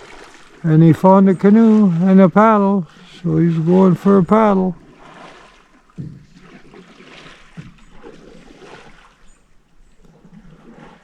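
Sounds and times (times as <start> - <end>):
paddle swishing water: 0.0 - 11.0
soft knock: 6.0 - 6.4.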